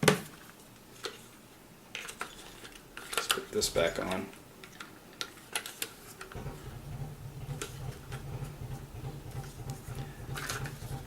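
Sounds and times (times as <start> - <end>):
low steady hum: 6.2 - 11.0.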